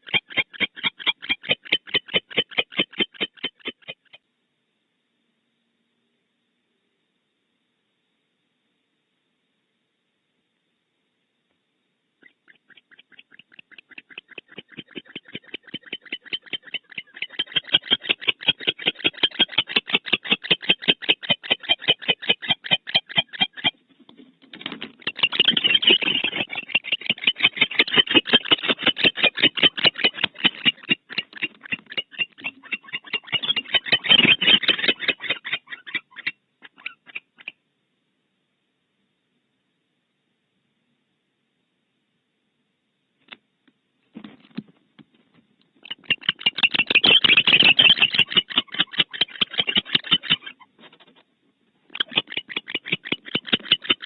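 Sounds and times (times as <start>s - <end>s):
barn owl chittering call: 0.0s - 4.2s, 12.2s - 23.8s, 25.0s - 37.6s, 45.8s - 51.2s, 51.9s - 54.0s.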